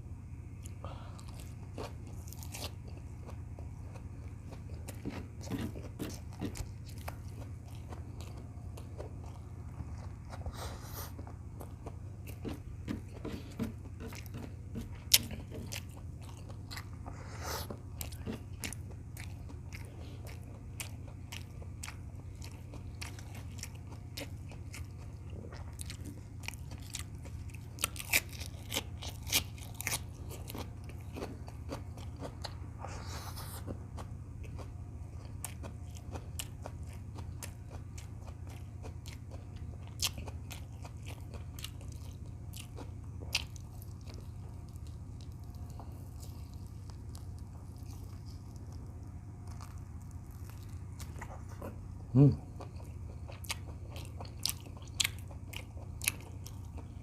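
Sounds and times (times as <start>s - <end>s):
steady low hum: 0.0s - 57.0s
close chewing and mouth smacks: 0.6s - 57.0s.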